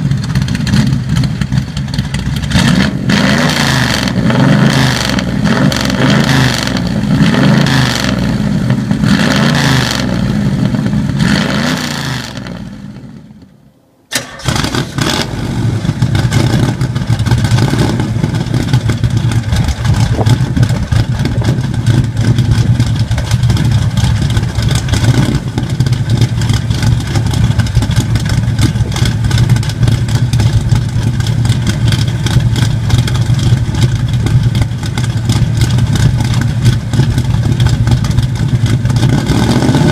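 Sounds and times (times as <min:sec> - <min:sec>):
car engine idling: 0:00.0 - 0:09.4, 0:10.1 - 0:11.2, 0:12.3 - 0:39.9.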